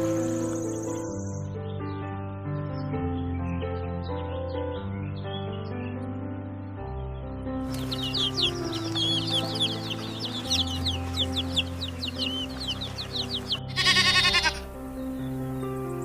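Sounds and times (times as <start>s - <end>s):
background music: 0.0s - 16.0s
birds chirping: 0.0s - 16.0s
loud wavering bleat: 13.7s - 14.7s.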